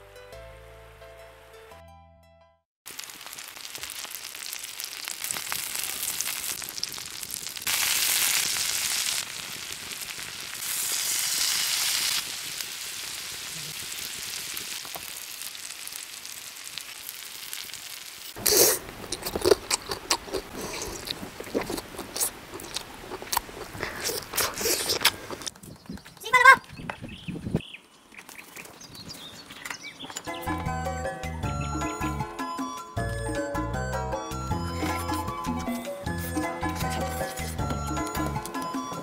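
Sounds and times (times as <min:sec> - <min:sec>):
food sizzling in oil: 0:02.9 - 0:19.2
crunchy bites and chewing: 0:18.4 - 0:25.5.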